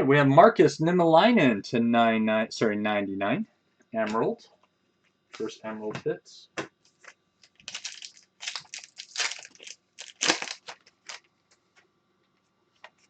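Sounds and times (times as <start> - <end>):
card wrappers crinkling: 7.0 - 11.3.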